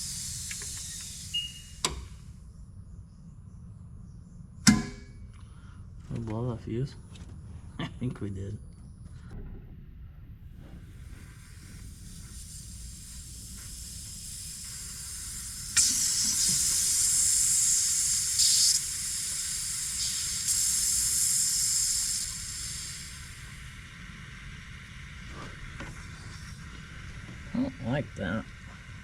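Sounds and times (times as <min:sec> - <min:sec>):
compressed air hissing: 0:00.0 - 0:02.4, 0:10.5 - 0:29.0
steady low rumble: 0:00.0 - 0:18.0, 0:22.0 - 0:29.0.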